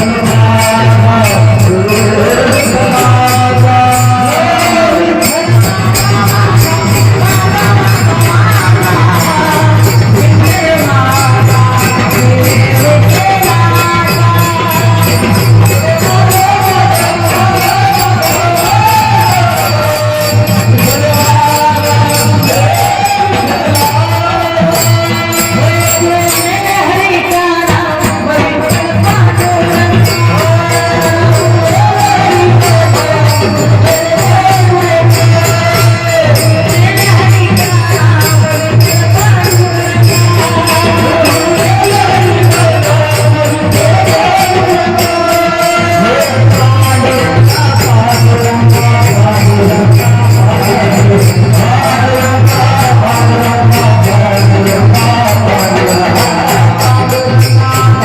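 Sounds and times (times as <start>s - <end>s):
person singing: 0.0s - 58.0s
small hand cymbals beating: 0.0s - 58.0s.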